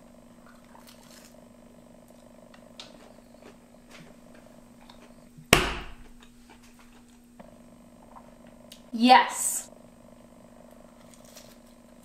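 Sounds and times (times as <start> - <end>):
steady low hum: 0.0 - 12.0
loud thump: 5.5 - 6.0.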